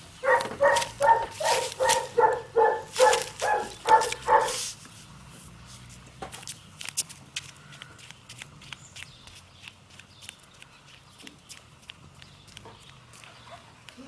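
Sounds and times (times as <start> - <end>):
dog barking: 0.2 - 4.6.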